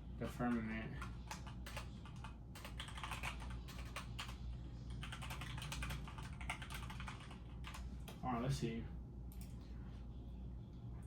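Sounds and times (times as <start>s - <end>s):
low steady hum: 0.0s - 11.0s
keyboard typing clicks: 1.3s - 4.4s.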